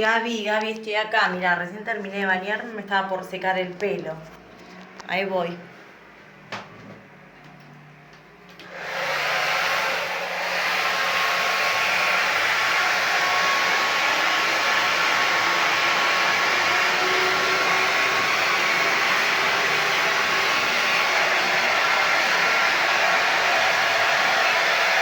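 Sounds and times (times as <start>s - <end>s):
hair dryer running: 8.5s - 25.0s.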